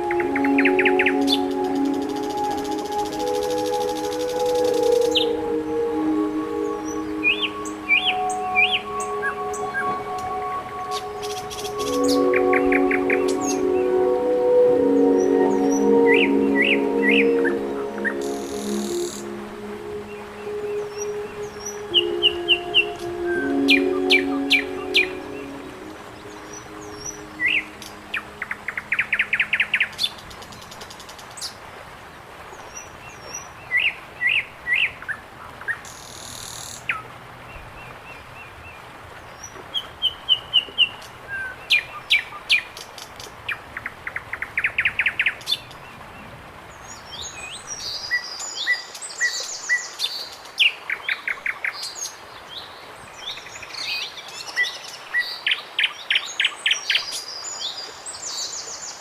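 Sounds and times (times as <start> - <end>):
birds singing and chirping: 0.0 - 19.3.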